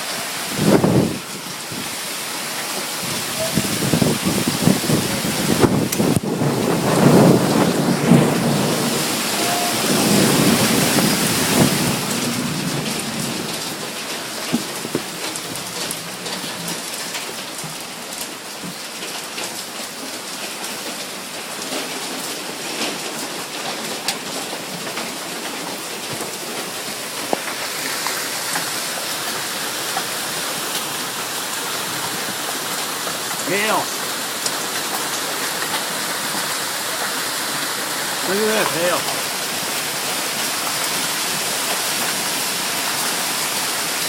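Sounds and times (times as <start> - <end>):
heavy rain hissing: 0.0 - 44.0
hailstones ticking on hard surfaces: 2.3 - 44.0
low rumble of thunder: 3.1 - 13.9.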